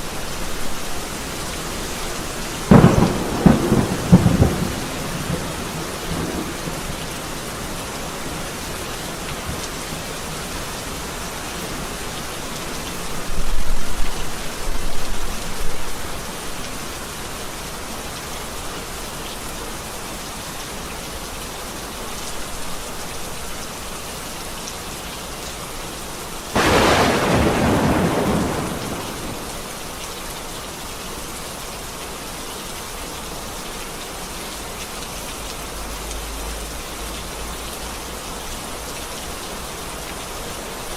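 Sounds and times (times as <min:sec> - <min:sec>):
steady rain falling: 0:00.0 - 0:40.9
sharp thunderclap: 0:02.7 - 0:06.5, 0:26.6 - 0:29.6
thunder rumbling: 0:02.7 - 0:07.2, 0:26.6 - 0:29.7.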